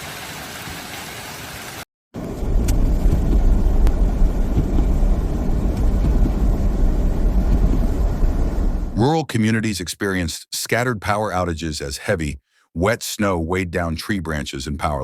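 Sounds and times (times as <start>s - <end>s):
motor vehicle rumbling: 2.2s - 9.0s.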